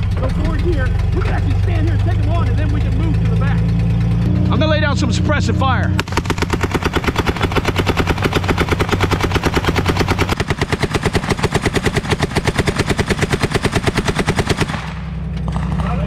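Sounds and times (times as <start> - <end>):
machine gun firing rapid burst: 6.0 - 16.0.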